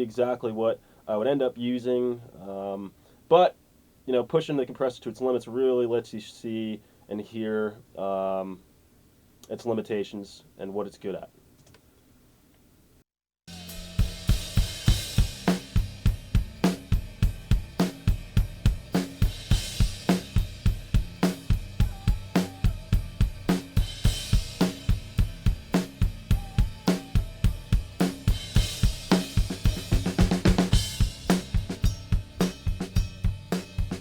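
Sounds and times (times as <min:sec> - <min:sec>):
drum kit playing a steady beat: 0:13.5 - 0:34.0.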